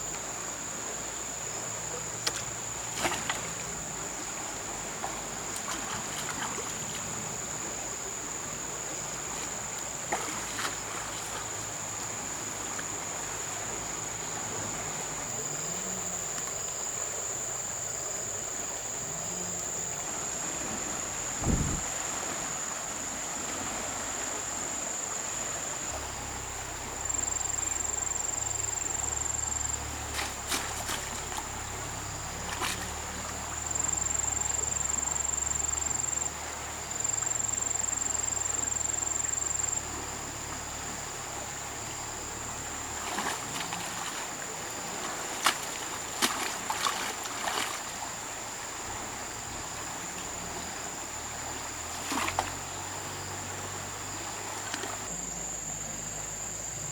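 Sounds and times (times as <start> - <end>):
low hum: 25.9 - 34.3.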